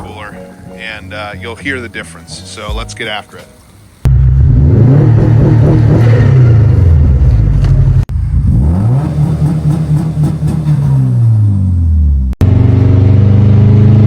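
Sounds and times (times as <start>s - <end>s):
turbocharged car engine accelerating: 4.0s - 14.0s.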